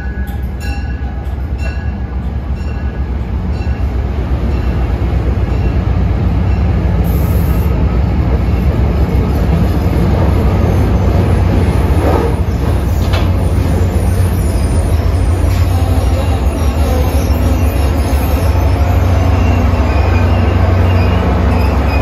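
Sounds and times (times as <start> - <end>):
train coaches rumbling past: 0.0 - 22.0
wheels clicking over rail joints: 11.5 - 13.8.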